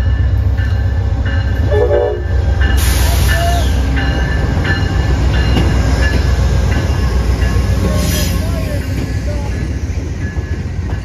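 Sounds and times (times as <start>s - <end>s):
locomotive engine rumbling: 0.0s - 11.0s
wheel and rail noise: 0.0s - 11.0s
train horn: 1.6s - 2.4s.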